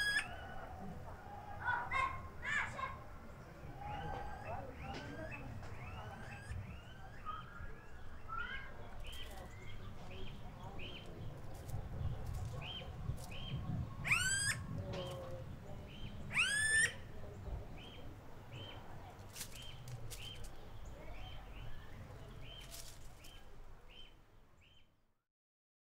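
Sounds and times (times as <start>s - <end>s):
rising bird calls: 0.0s - 0.7s, 3.7s - 9.4s, 14.0s - 15.2s, 16.3s - 17.1s
birds chirping: 0.0s - 24.9s.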